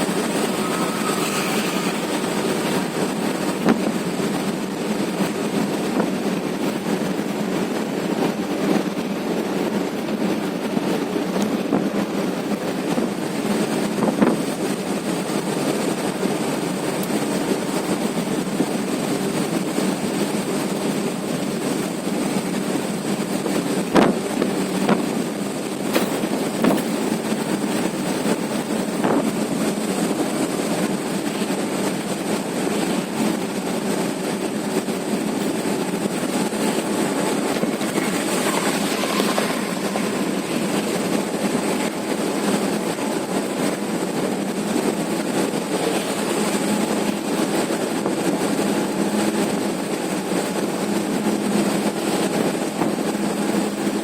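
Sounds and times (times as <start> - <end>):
truck engine and road noise: 0.0 - 54.0
sharp knocks and clatters: 25.9 - 27.2.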